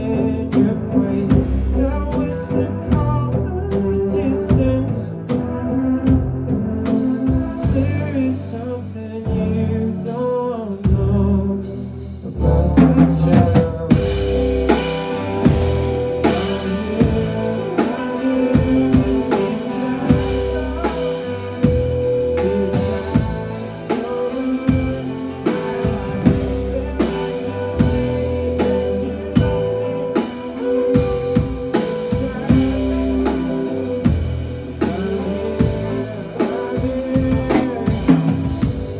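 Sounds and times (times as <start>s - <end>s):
drum kit slow beat: 0.0s - 38.9s
guitar: 0.0s - 38.9s
low notes sliding downward: 9.3s - 38.9s.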